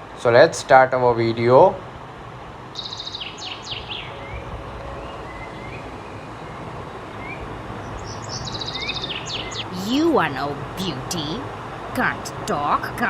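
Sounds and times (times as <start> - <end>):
steady background hiss: 0.0 - 13.0
birds chirping and trilling: 2.8 - 13.0.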